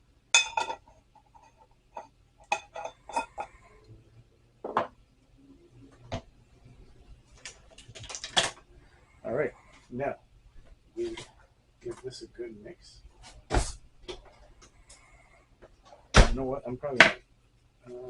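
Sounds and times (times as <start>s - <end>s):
utensils clinking against dishes: 0.4s - 3.6s.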